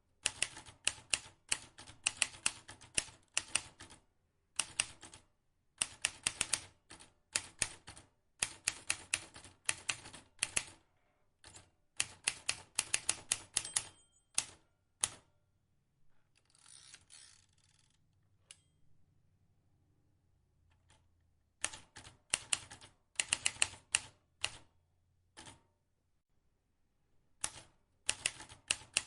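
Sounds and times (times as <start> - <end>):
typewriter key strikes: 12.9 - 14.6
typewriter bell ding: 13.5 - 14.7.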